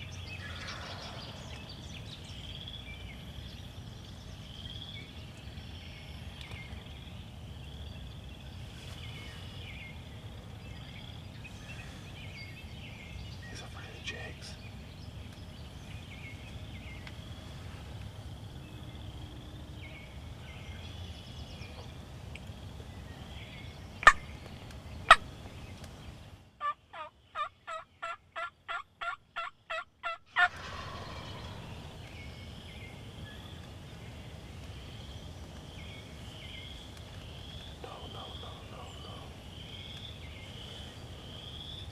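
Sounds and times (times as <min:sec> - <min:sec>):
turkey yelps: 0:26.6 - 0:31.7.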